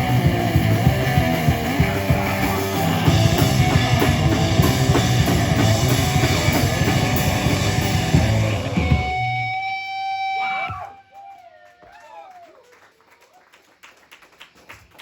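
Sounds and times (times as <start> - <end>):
live heavy rock band: 0.0 - 11.0.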